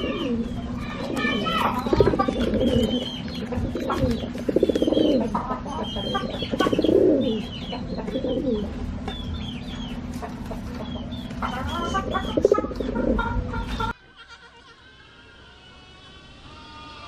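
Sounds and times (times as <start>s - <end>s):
pigeons cooing: 0.0s - 8.9s, 9.8s - 13.9s
small birds chirping: 0.0s - 14.0s.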